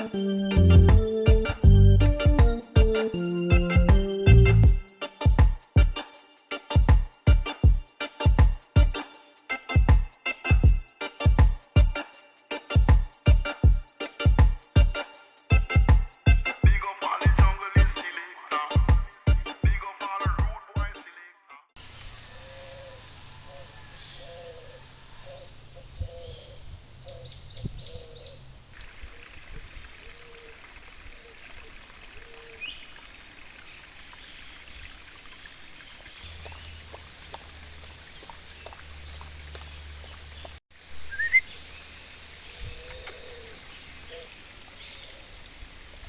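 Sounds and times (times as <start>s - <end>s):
birds chirping: 0.0s - 21.3s
stream trickling over stones: 28.6s - 46.0s.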